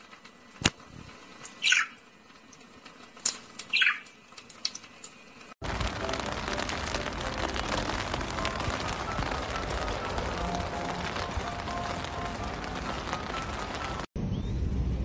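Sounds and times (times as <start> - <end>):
loud even noise: 5.6 - 14.1.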